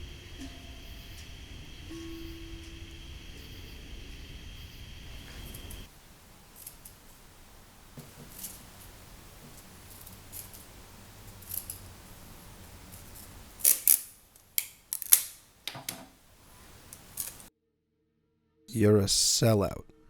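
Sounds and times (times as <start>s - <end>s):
sharp clicks: 5.2s - 17.5s.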